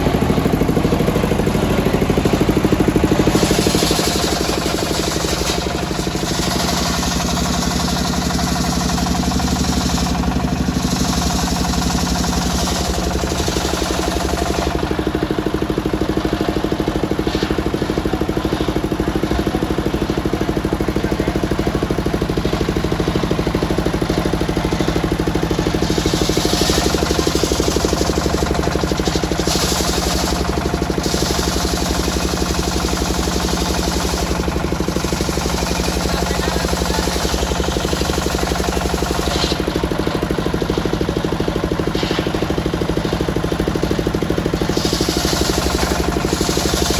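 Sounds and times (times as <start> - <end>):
circular saw cutting wood: 0.0 - 15.1, 23.6 - 41.0, 41.7 - 46.9
sawmill engine running: 0.0 - 46.9.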